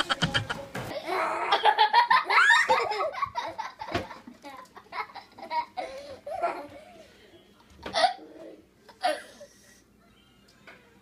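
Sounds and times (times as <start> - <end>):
people laughing: 0.0 - 0.7.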